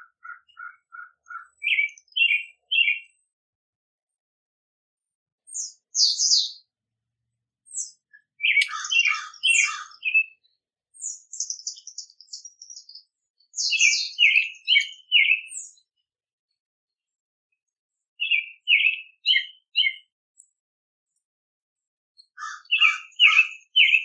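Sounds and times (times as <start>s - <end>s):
songbirds chirping and singing: 0.0s - 3.4s, 5.4s - 6.7s, 7.6s - 16.6s, 18.0s - 20.6s, 22.2s - 24.0s.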